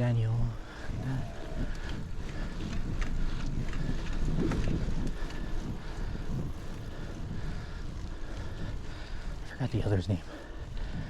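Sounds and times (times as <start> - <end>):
low road rumble: 0.0 - 11.0
wind rushing over microphone: 0.0 - 11.0
faint clicks: 1.2 - 6.9.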